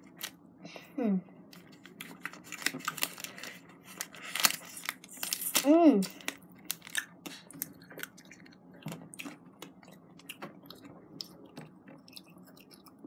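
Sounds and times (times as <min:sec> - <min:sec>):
child chewing candy: 0:01.5 - 0:13.0.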